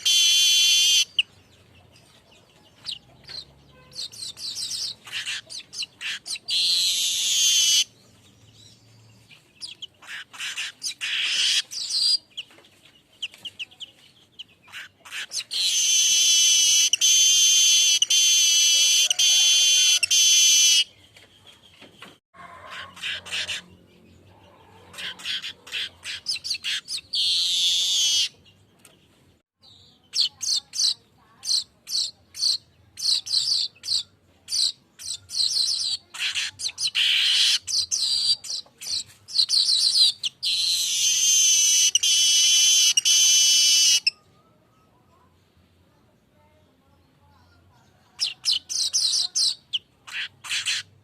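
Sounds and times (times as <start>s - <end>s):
buzzy wheezing bird song: 0.0s - 1.4s, 2.8s - 12.4s, 14.6s - 20.9s, 24.4s - 28.5s, 30.0s - 45.1s.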